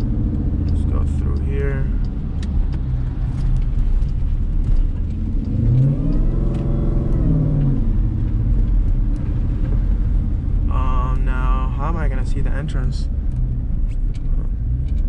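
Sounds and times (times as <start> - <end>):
engine revving: 0.0 - 9.5
low rumble: 0.0 - 15.0.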